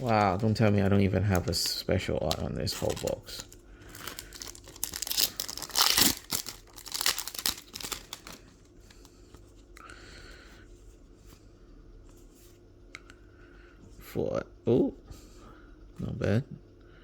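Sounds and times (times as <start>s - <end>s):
foil pack tearing and crinkling: 0.0s - 0.7s, 2.3s - 8.4s.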